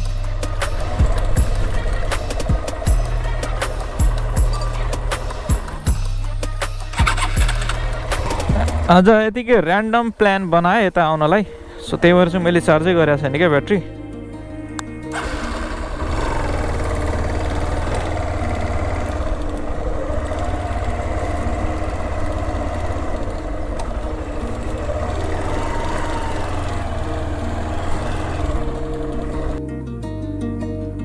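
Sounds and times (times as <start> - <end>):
motorcycle engine revving: 0.0 - 9.1, 14.8 - 29.6.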